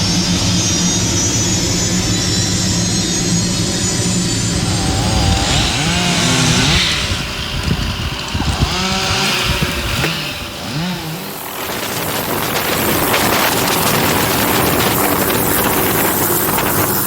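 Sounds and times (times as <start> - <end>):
helicopter rotor and turbine: 0.0 - 17.0
wind: 0.0 - 17.0
chainsaw revving: 3.6 - 17.0.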